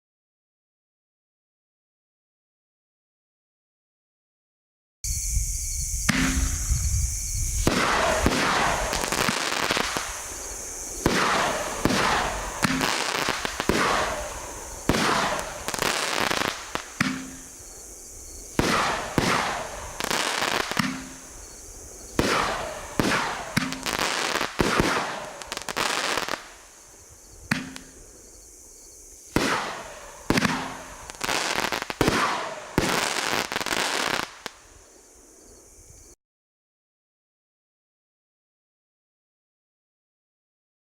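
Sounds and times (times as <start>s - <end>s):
fireworks cake bangs: 7.6s - 26.6s, 27.4s - 28.1s, 29.3s - 34.6s.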